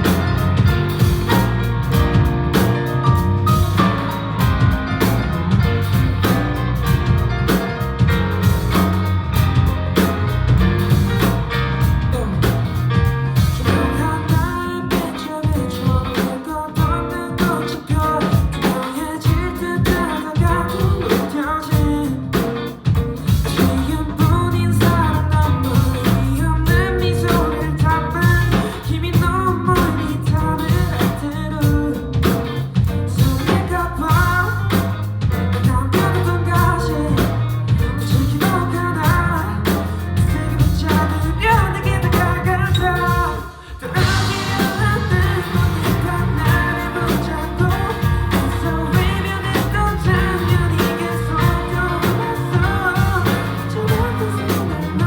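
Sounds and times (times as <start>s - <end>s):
live pop-rock band: 0.0s - 55.0s
person singing: 12.0s - 12.8s, 13.4s - 32.5s, 33.1s - 55.0s.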